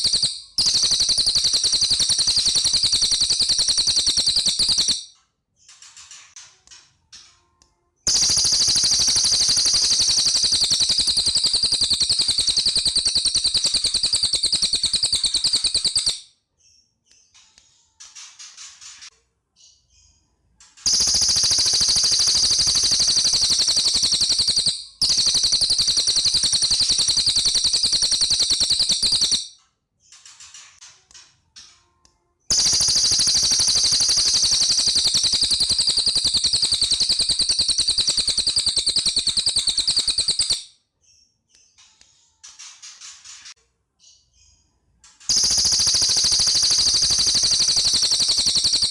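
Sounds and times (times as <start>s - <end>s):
bird rattling trills: 0.0s - 5.0s, 8.1s - 16.2s, 20.8s - 29.5s, 32.5s - 40.6s, 45.3s - 48.9s.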